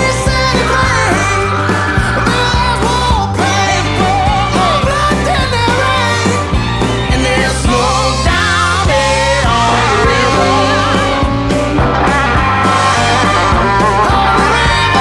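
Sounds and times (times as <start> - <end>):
bass line: 0.0 - 15.0
drums: 0.0 - 15.0
rock-country song: 0.0 - 15.0
wavering lead voice or guitar: 0.0 - 15.0.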